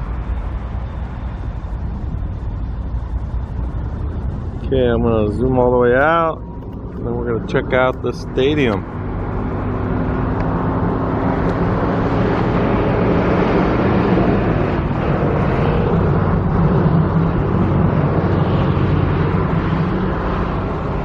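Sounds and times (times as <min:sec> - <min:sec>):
motor vehicle engine hum: 0:00.0 - 0:21.0.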